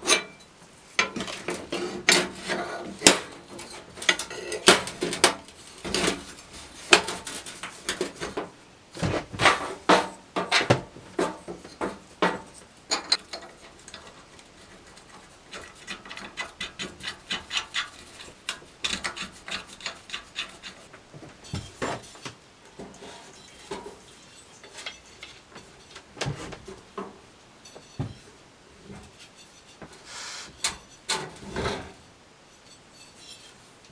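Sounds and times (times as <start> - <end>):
sharp knocks and clatters: 1.0 - 14.2, 14.8 - 24.0.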